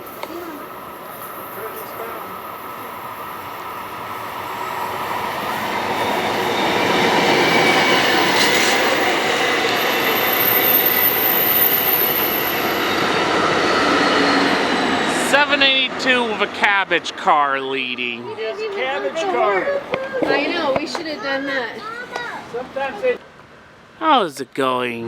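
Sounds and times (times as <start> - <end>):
passenger train rolling by: 0.0 - 25.0
high wheel squeal: 1.2 - 16.0.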